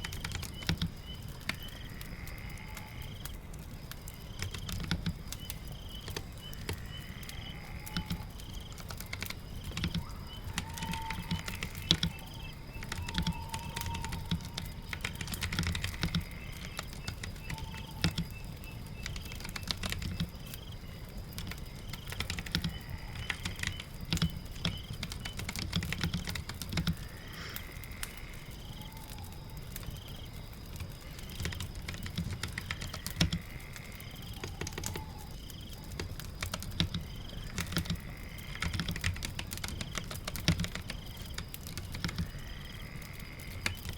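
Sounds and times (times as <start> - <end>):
rain patter: 0.0 - 43.9
faint high chirping calls: 4.3 - 30.2
keyboard typing: 7.8 - 20.6, 21.4 - 27.1, 30.8 - 33.5, 34.3 - 35.2, 35.9 - 42.5.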